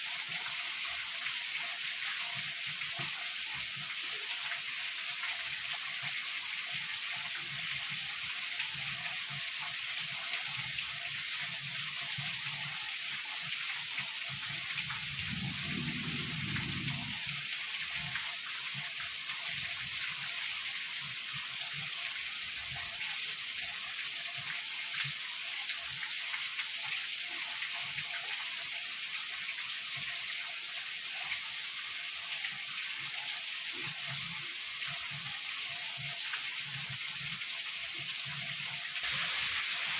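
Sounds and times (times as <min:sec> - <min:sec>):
heavy rain falling: 0:15.0 - 0:18.2, 0:39.0 - 0:39.9.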